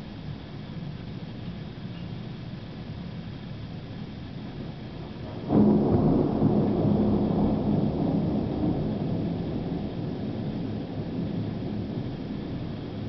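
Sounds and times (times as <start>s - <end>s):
thunder clap and rumble: 4.6s - 13.0s.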